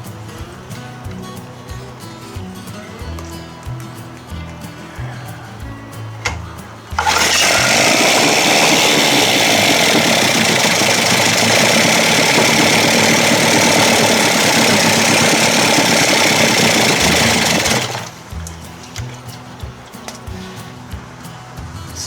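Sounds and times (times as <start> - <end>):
outboard engine running: 7.0 - 18.3.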